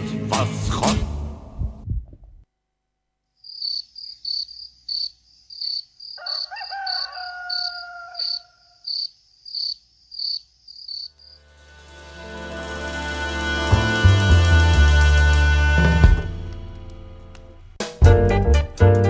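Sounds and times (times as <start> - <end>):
cricket chirping: 3.4 - 11.5.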